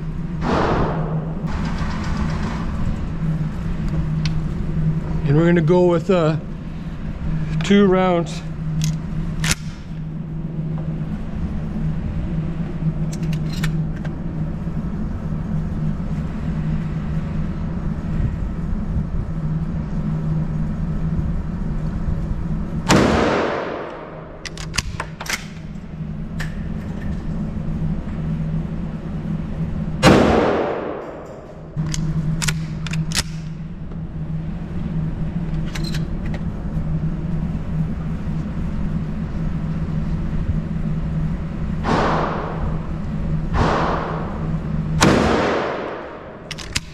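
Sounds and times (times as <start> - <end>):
steady low hum: 0.0 - 46.9
shotgun blasts: 0.4 - 1.4, 22.9 - 24.2, 30.0 - 31.2, 41.8 - 42.6, 43.5 - 44.4, 45.0 - 46.4
small clicks: 46.4 - 46.9.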